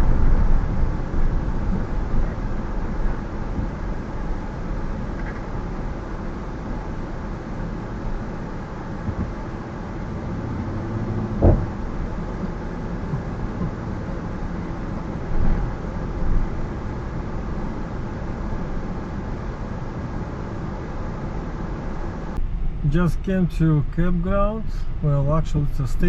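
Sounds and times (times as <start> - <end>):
car driving slowly: 0.0 - 26.0
sharp knock: 11.4 - 11.7.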